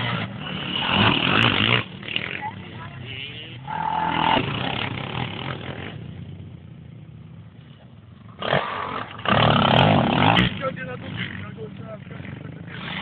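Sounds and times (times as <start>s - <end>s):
quad engine running: 0.0s - 13.0s.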